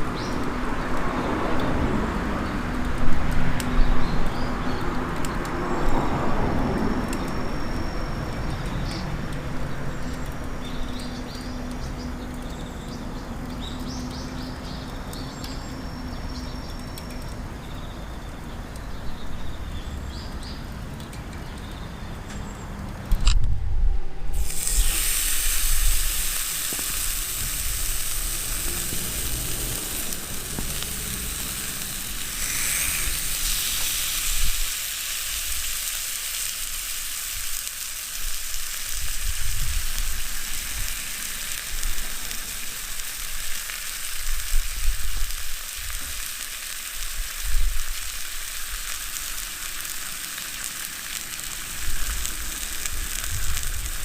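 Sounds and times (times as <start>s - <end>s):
meat sizzling on a grill: 24.3s - 54.0s.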